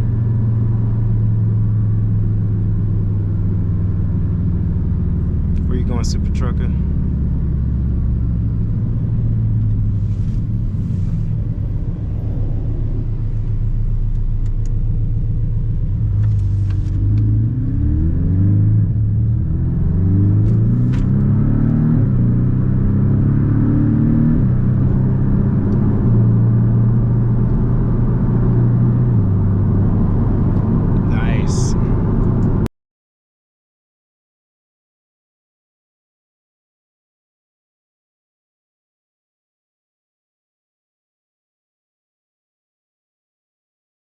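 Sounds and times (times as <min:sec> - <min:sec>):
car engine accelerating through gears: 0:00.0 - 0:32.7.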